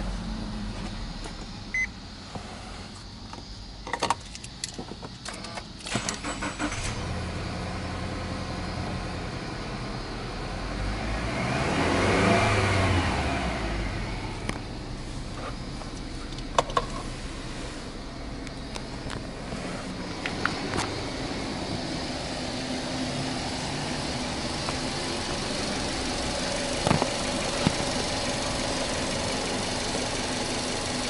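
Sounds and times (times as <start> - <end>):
car engine starting and idling: 0.0 - 31.0
engine revving: 6.2 - 15.3.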